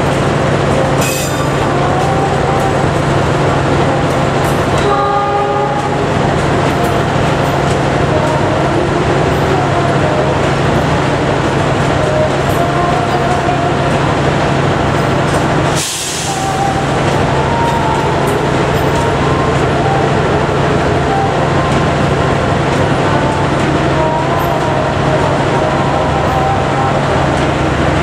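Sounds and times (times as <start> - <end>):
diesel locomotive idling: 0.0 - 28.0
train wheels rumbling and squealing: 0.0 - 28.0.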